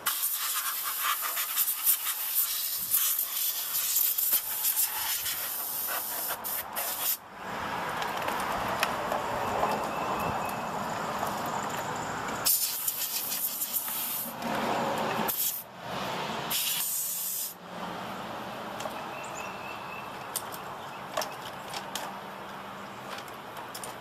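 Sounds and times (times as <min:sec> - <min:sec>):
compressed air spraying: 0:00.0 - 0:07.2, 0:12.4 - 0:14.4, 0:15.3 - 0:15.7, 0:16.5 - 0:17.6.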